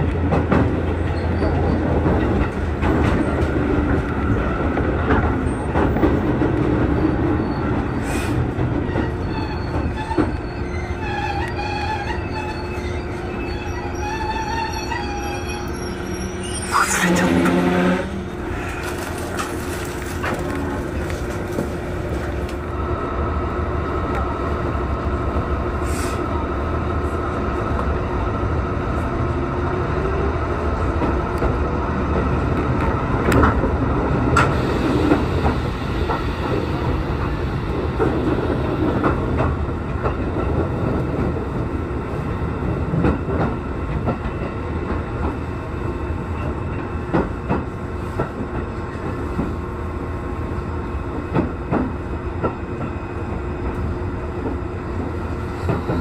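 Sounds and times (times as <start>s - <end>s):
train motor whine: 9.7s - 18.8s.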